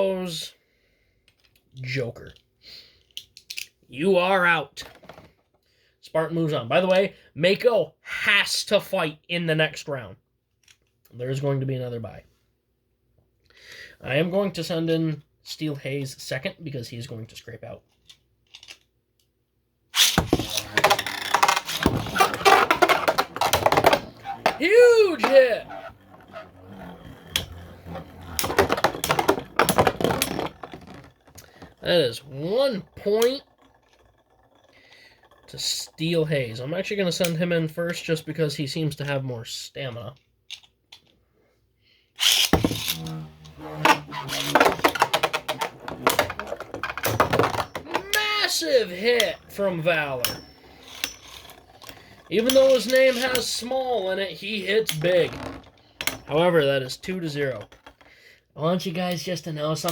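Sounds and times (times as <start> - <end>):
spinning tops scraping: 20.0 - 36.7, 42.2 - 57.4.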